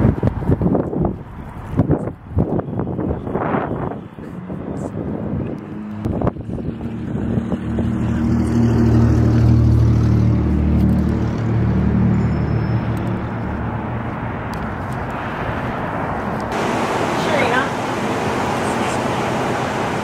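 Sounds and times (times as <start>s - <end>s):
vehicle engine running: 16.5s - 20.0s.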